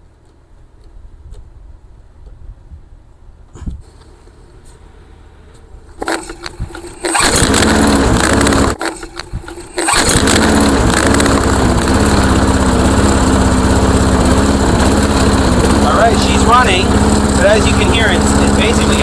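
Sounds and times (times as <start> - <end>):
lawn mower engine idling: 6.0 - 19.0.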